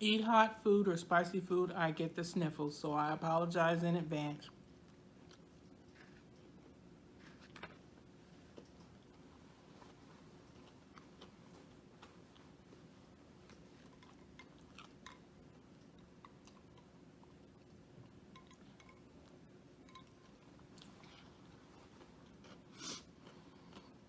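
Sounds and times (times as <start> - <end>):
low steady hum: 0.0 - 24.0
person chewing: 4.8 - 7.7, 8.5 - 17.7, 20.0 - 24.0.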